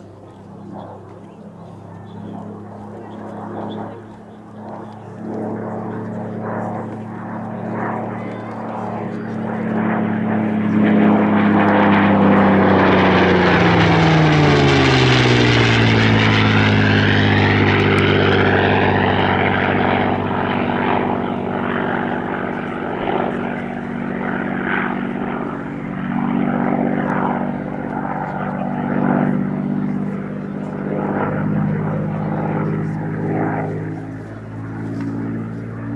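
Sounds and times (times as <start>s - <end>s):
propeller aircraft engine flying past: 0.0s - 35.9s.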